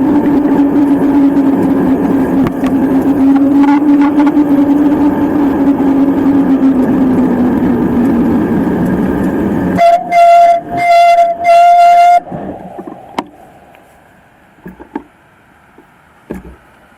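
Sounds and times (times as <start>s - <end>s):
horn blasts: 0.0s - 7.5s, 9.7s - 13.5s
vehicle running with wind noise: 0.0s - 16.9s.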